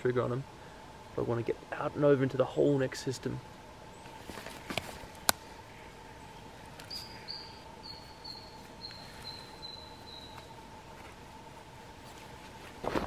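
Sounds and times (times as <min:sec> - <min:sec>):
faint steady hum: 0:00.0 - 0:13.0
bird calling high notes: 0:06.0 - 0:10.6.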